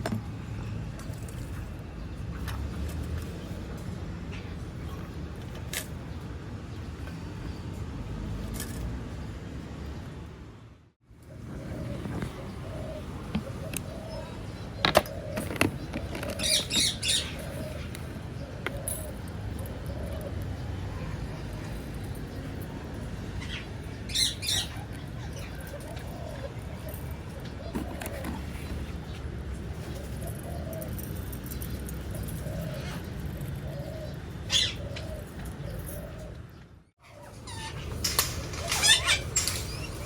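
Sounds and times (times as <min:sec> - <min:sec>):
birds calling: 0:11.2 - 0:40.0
parrot squawking: 0:16.4 - 0:17.9, 0:38.5 - 0:40.0.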